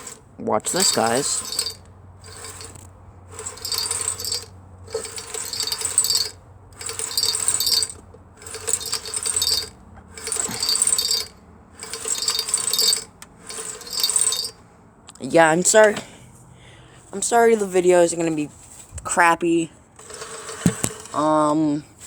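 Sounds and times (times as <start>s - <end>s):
hand tool rasping on metal: 0.0s - 14.5s, 20.0s - 21.3s.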